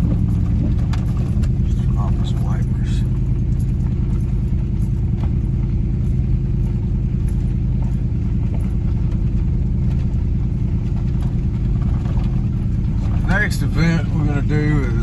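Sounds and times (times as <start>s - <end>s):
car engine drone: 0.0s - 15.0s
road noise: 0.0s - 15.0s.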